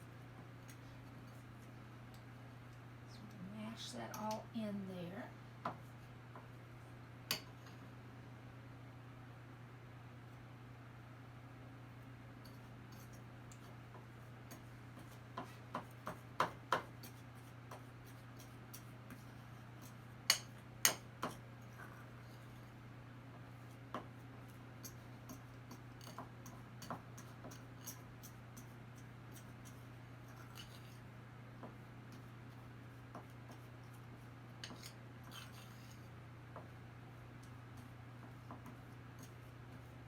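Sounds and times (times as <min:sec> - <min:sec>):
fork clinking against a bowl: 0:20.3 - 0:21.0.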